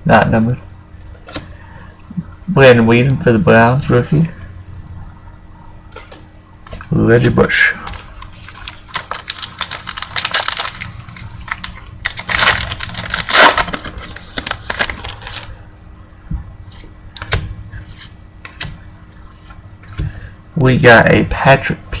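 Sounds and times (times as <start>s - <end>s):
cards rustling and snapping: 7.9s - 15.6s.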